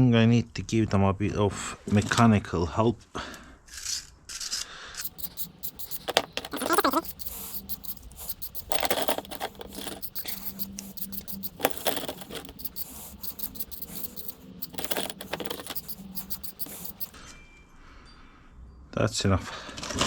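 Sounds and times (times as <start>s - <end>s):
metal parts being scraped: 3.8s - 17.2s
metal clinking on metal: 5.0s - 17.2s.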